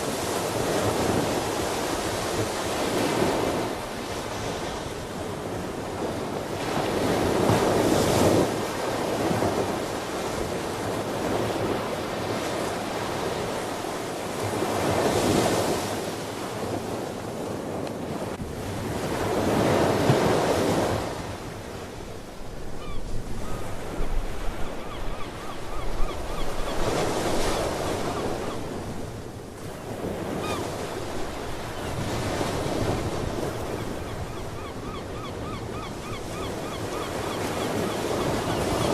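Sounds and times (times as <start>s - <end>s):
ocean waves breaking on shore: 0.0s - 38.9s
faint sea bird calls: 22.8s - 28.7s, 30.3s - 30.8s, 33.7s - 38.9s.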